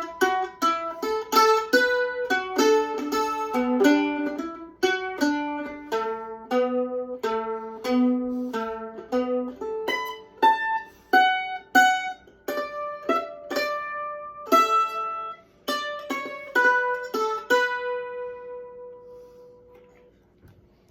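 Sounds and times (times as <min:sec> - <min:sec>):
plucked string melody: 0:00.0 - 0:20.1.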